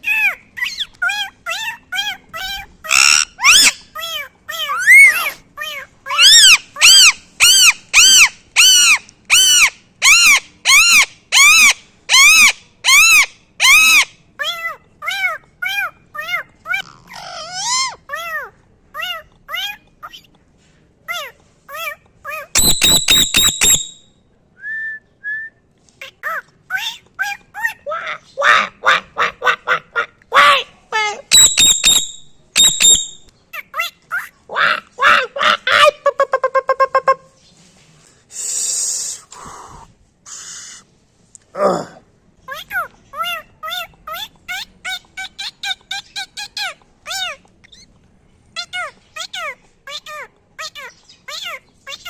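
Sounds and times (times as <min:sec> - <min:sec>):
parrot bark-like calls: 0:00.0 - 0:20.2, 0:21.1 - 0:23.9, 0:26.8 - 0:37.3.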